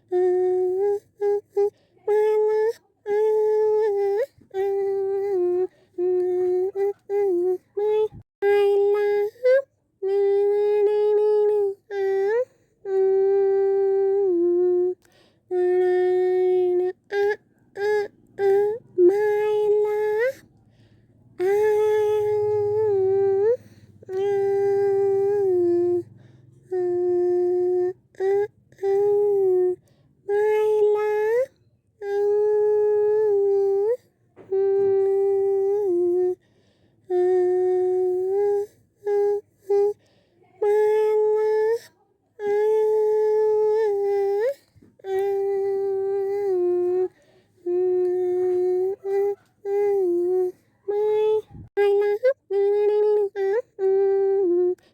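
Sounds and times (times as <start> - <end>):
high voice humming a tune: 0.0 - 20.5, 21.3 - 54.9.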